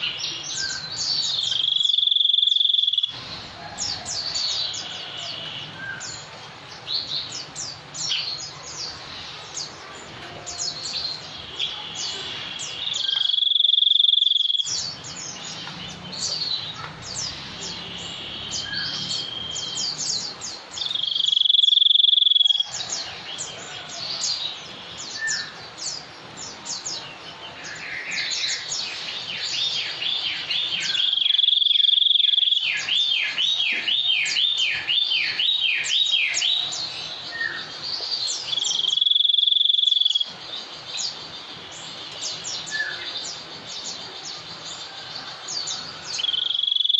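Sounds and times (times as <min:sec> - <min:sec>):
insect-like trill: 0:01.4 - 0:03.2, 0:13.0 - 0:15.0, 0:20.9 - 0:22.7, 0:38.6 - 0:40.3, 0:46.3 - 0:46.9.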